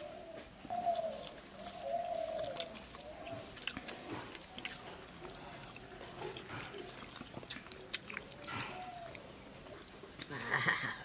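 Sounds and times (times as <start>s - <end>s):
low cooing call: 0.0s - 3.4s, 8.4s - 9.4s
person chewing food: 0.6s - 10.7s.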